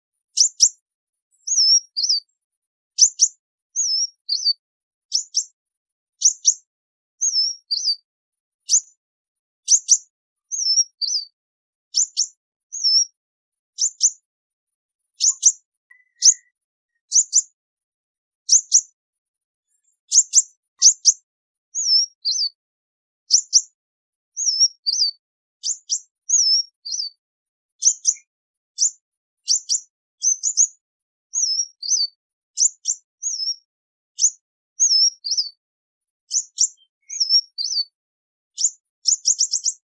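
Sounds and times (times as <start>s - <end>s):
sunbirds calling: 1.4s - 2.3s, 3.0s - 5.5s, 6.2s - 6.6s, 7.2s - 8.9s, 9.7s - 11.4s, 12.0s - 13.2s, 15.0s - 17.5s, 21.8s - 22.6s, 24.4s - 27.2s, 29.5s - 30.7s, 31.4s - 33.7s, 34.8s - 35.6s, 36.3s - 38.0s, 38.6s - 39.8s.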